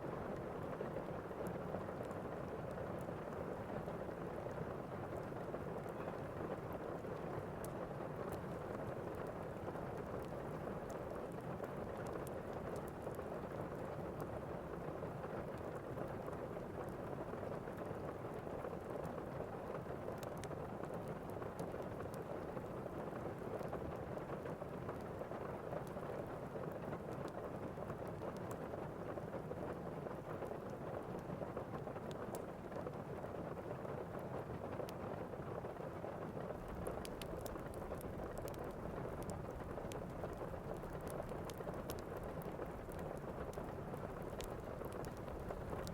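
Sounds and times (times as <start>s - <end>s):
steady rain: 0.0s - 45.9s
faint ticks: 23.5s - 33.2s, 36.5s - 45.9s.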